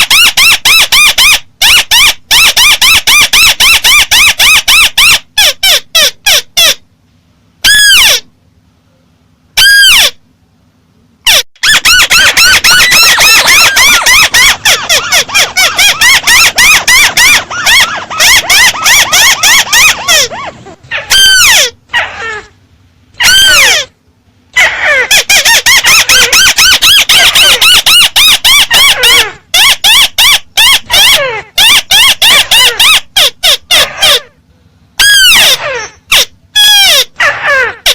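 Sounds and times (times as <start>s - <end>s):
bird squealing chirps: 11.3s - 22.5s.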